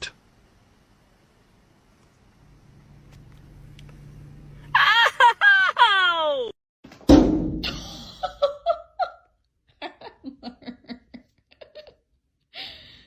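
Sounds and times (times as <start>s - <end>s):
person laughing: 4.7s - 6.6s, 7.6s - 12.0s
sudden thump: 6.9s - 7.8s.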